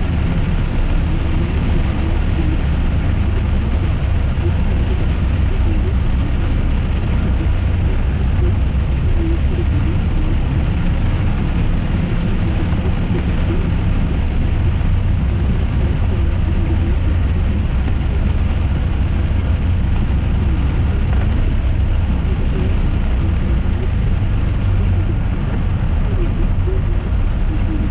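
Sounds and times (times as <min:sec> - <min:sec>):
car cabin road and engine rumble: 0:00.0 - 0:27.9
rain on car: 0:00.0 - 0:27.9.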